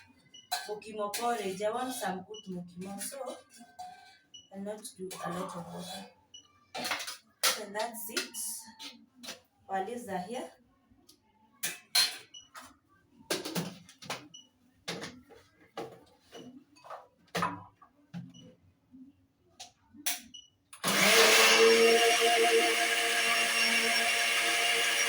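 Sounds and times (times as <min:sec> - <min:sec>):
blender motor running: 0:20.8 - 0:25.0.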